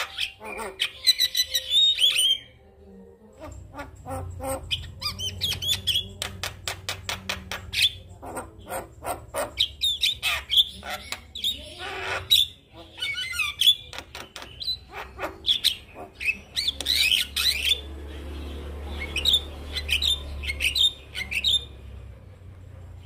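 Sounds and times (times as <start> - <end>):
myna singing chattering song: 0.3 - 9.8.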